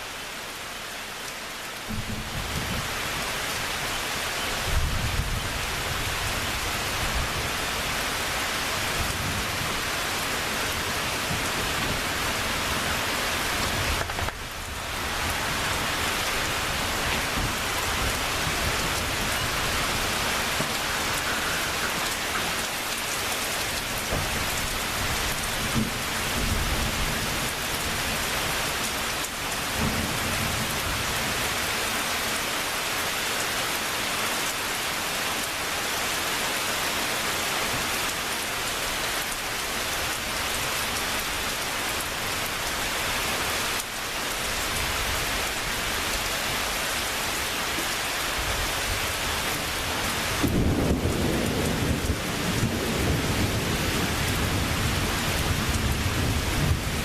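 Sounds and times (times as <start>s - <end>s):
heavy rain falling: 0.0s - 57.0s
thunder rumbling: 50.3s - 57.0s.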